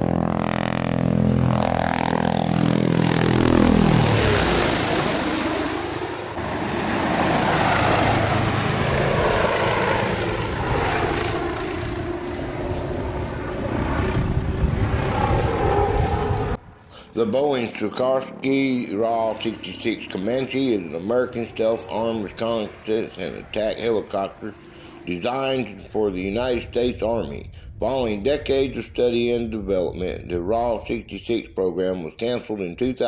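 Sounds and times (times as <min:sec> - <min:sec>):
aircraft flying past: 0:00.0 - 0:33.0.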